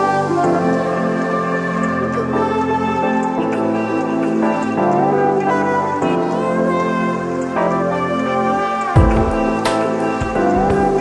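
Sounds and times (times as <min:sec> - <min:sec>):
calm ambient music: 0:00.0 - 0:11.0.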